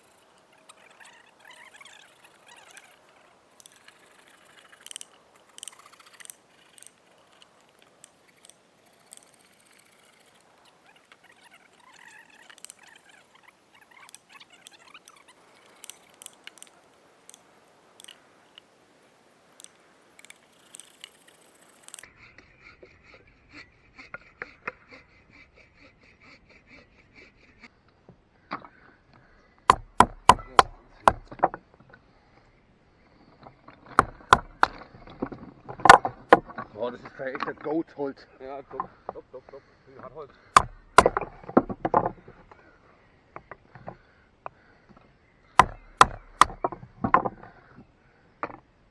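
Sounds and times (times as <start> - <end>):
rustling: 0.0 - 22.1
faint clicks: 0.0 - 22.5, 27.8 - 48.7
wooden baton striking knife spine: 29.7 - 31.4, 40.6 - 42.2, 45.6 - 47.3.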